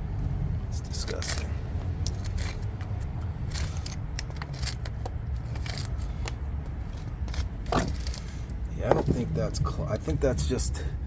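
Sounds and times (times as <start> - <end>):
steady low rumble: 0.0 - 11.0
light clicks and scrapes of handling: 1.0 - 9.3.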